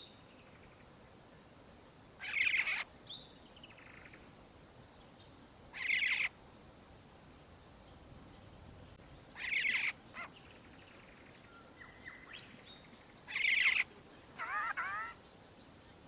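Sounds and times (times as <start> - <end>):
bird rolling calls: 13.4 - 15.2.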